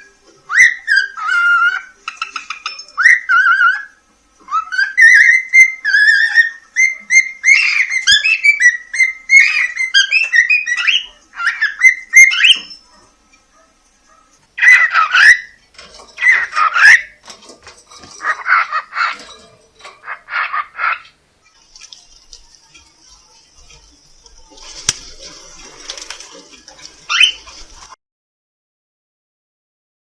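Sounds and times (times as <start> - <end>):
cockatiel whistling song: 0.0 - 12.9, 26.9 - 27.8
cockatiel raspy calls: 0.5 - 13.1, 14.6 - 15.6, 20.0 - 21.2, 26.8 - 27.9.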